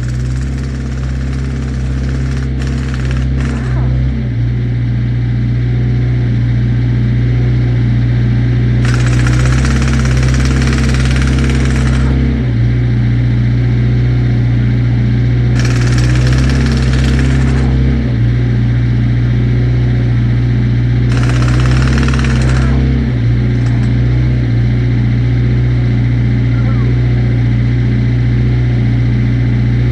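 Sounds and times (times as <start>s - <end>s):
harsh rattling noise: 0.0s - 4.1s, 8.8s - 12.2s, 15.6s - 17.9s, 21.1s - 24.0s
large engine idling: 0.0s - 29.9s.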